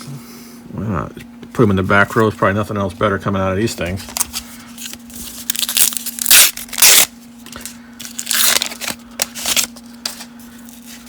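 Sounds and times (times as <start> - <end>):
wrapper crinkling and ripping: 4.0 - 11.0.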